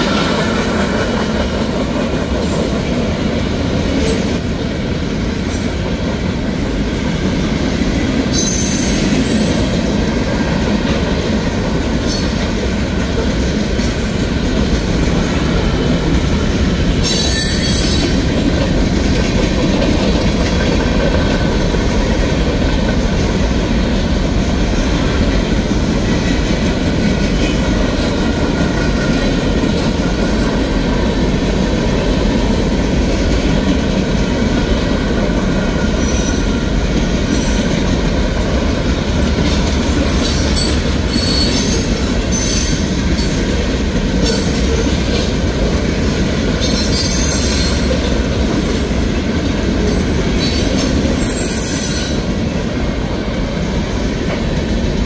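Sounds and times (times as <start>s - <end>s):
freight train wheels rumbling on rail: 0.0s - 55.0s
high-pitched wheel squeals: 40.2s - 42.9s.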